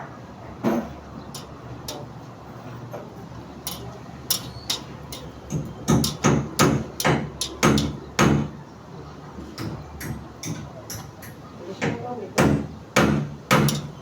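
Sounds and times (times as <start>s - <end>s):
hammer strikes: 1.4s - 2.1s, 3.7s - 8.5s, 9.6s - 14.0s
construction taps and knocks: 3.7s - 8.6s, 9.4s - 14.0s.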